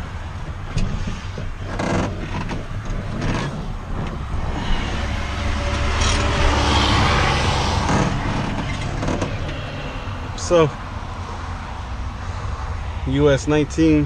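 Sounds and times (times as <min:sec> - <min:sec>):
road traffic rumble: 0:00.0 - 0:14.0
vehicle passing: 0:03.1 - 0:14.0.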